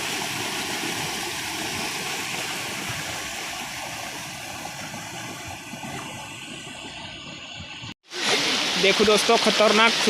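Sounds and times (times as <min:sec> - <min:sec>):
floodwater rushing in stream: 0:00.0 - 0:10.0.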